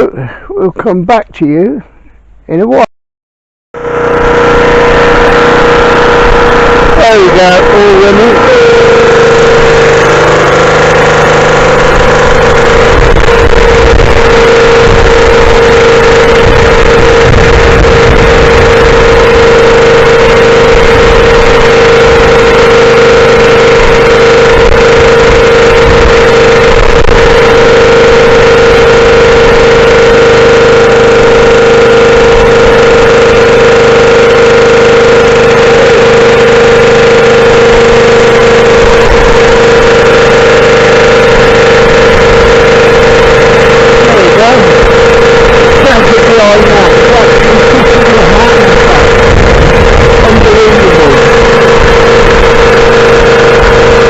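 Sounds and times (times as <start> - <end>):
rotavator engine running: 3.8 - 54.0.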